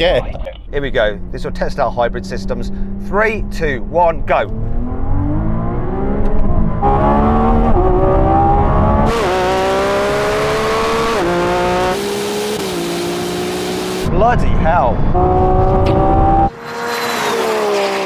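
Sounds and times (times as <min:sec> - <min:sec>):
car engine accelerating with gear shifts: 0:00.7 - 0:18.0.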